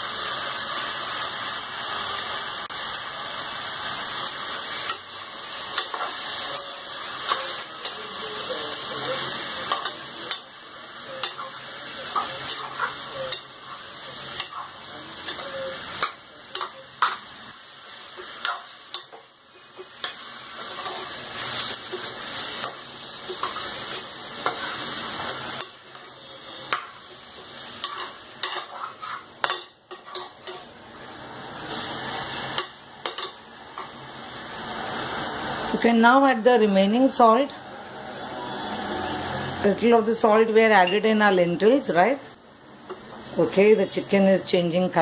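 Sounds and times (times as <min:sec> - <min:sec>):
chicken sizzling in pot: 0:00.0 - 0:44.2
steel spoon scraping metal pot: 0:27.8 - 0:30.7.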